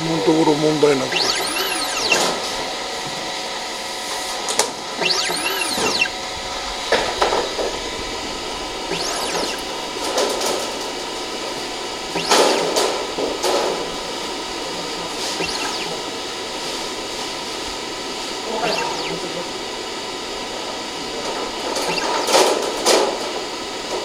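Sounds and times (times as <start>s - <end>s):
steady machine hum: 0.0s - 24.0s
small motors whirring: 0.8s - 3.3s, 4.4s - 17.8s, 18.4s - 19.8s, 21.7s - 22.6s.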